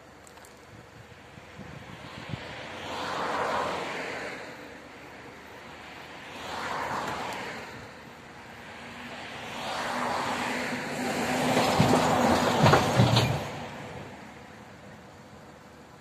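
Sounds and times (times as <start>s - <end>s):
train rumble and wheel noise: 6.9s - 16.0s
knocks: 11.6s - 13.5s.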